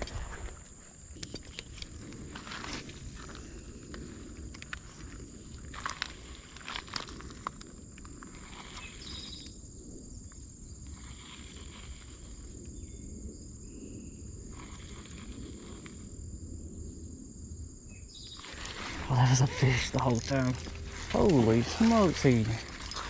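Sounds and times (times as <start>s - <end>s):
insects trilling: 0.0s - 23.0s
creek water rushing: 18.5s - 23.0s.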